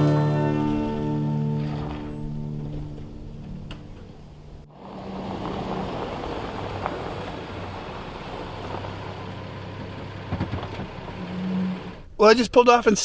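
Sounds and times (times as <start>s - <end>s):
music: 0.0s - 4.7s
pickup engine and tyre rumble: 0.0s - 12.2s.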